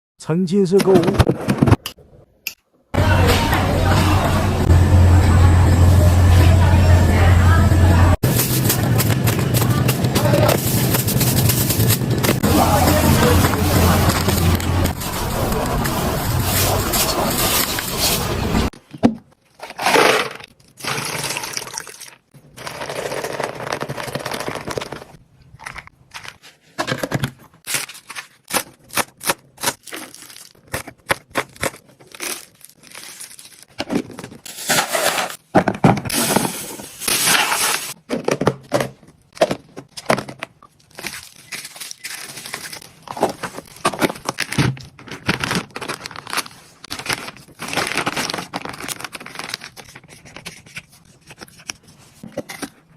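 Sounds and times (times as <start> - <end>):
plastic wrap crinkling and tearing: 8.2 - 18.5, 27.6 - 35.4, 40.6 - 52.2.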